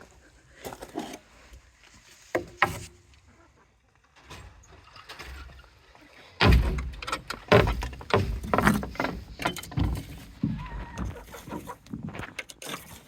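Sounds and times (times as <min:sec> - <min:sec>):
knocks and heavy thumps: 0:06.4 - 0:12.3.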